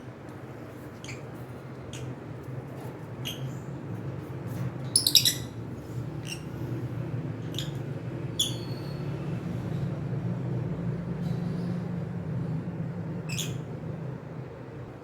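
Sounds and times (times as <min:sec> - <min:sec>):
cockatiels chirping: 0:05.0 - 0:05.6.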